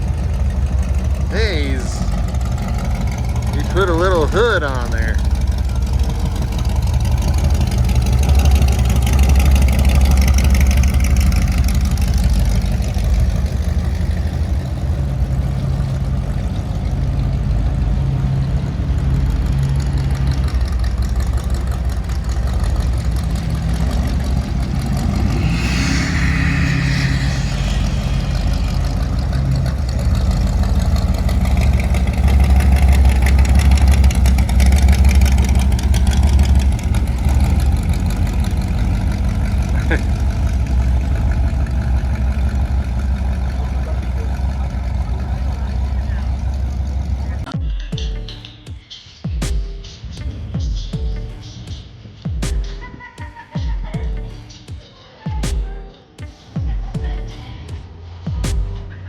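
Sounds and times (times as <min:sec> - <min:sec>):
car engine rumbling: 0:00.0 - 0:47.5
brief high-pitched sound: 0:24.8 - 0:29.6.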